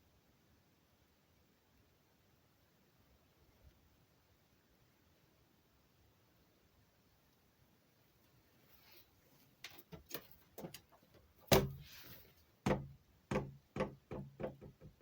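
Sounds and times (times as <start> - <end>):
sharp knocks: 12.6 - 15.0.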